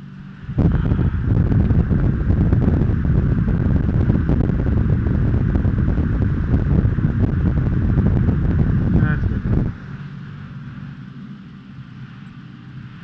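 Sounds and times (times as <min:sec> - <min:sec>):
loud low rumbling noise: 0:00.0 - 0:13.0.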